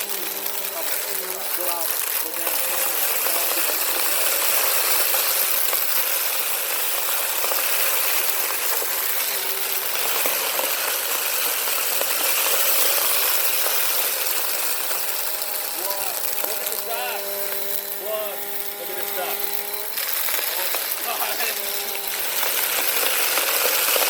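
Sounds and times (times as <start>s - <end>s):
grit rattling through vacuum: 0.0s - 24.0s
vacuum cleaner running: 0.0s - 24.0s.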